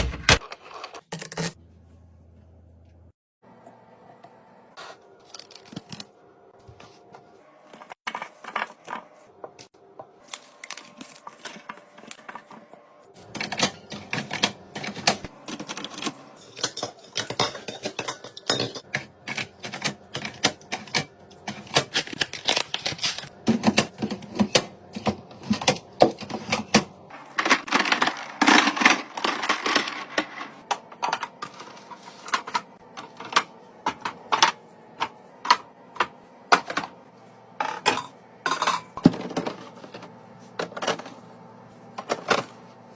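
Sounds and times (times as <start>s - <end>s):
food containers clattering: 13.2s - 37.0s, 37.6s - 41.2s.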